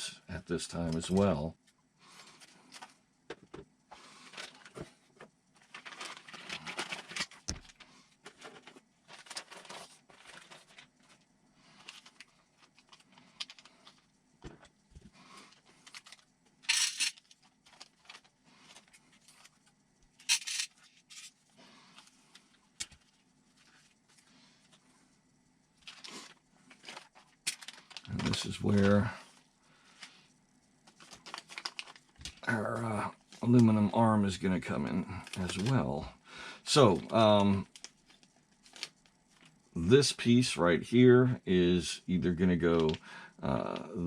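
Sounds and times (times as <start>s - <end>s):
small parts clicking and rattling: 5.6s - 11.2s, 11.8s - 14.8s, 15.5s - 21.4s, 25.8s - 29.1s, 30.8s - 32.4s
plastic bag crinkling: 5.6s - 14.1s, 25.8s - 29.1s, 30.9s - 32.5s
plastic bag rustling: 5.6s - 14.6s, 30.9s - 32.5s.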